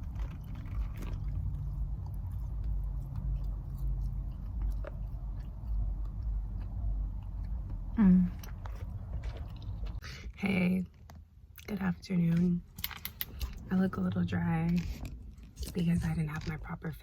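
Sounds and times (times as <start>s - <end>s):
person chewing food: 0.0s - 10.3s, 14.7s - 16.9s
steady low rumble: 0.0s - 17.0s.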